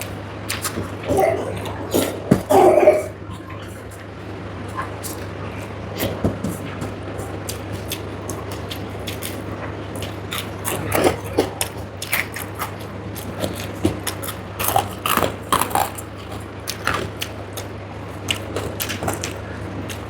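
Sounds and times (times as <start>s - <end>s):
chewing clicks: 0.0s - 2.2s, 7.5s - 20.0s
steady low hum: 0.0s - 20.0s.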